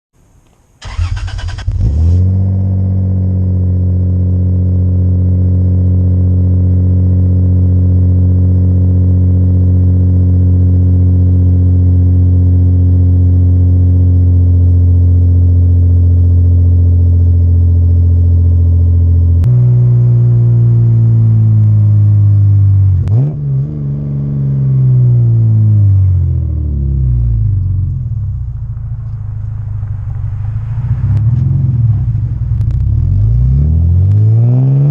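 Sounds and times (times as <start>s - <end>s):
car engine idling: 0.7s - 10.1s, 12.9s - 23.2s, 25.2s - 34.2s
starter cranking: 0.8s - 1.8s.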